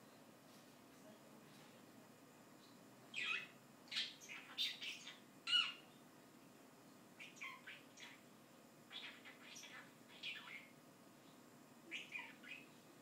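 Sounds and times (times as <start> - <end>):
bird squawking and chirping: 3.1 - 5.8, 7.2 - 8.2, 8.9 - 10.7, 11.9 - 12.7.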